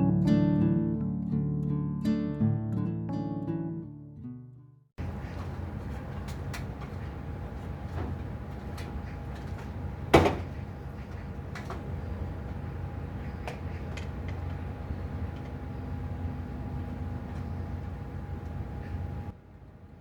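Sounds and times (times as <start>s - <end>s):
low mechanical hum: 5.0s - 20.0s.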